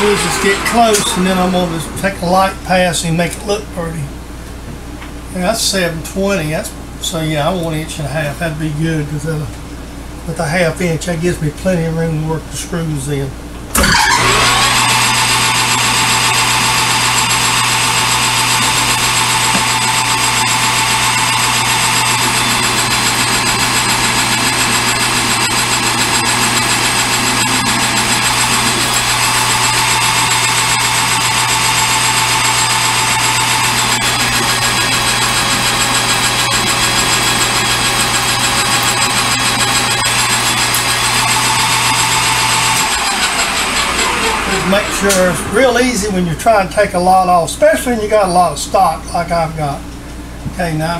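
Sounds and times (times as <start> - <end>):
metal lathe humming: 0.0 - 3.4, 13.8 - 47.7
high-pitched whine: 0.0 - 3.6, 42.1 - 49.3.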